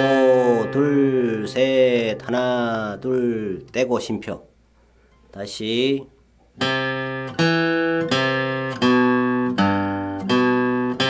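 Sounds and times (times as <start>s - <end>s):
acoustic guitar plucked melody: 0.0s - 2.5s, 6.6s - 11.0s.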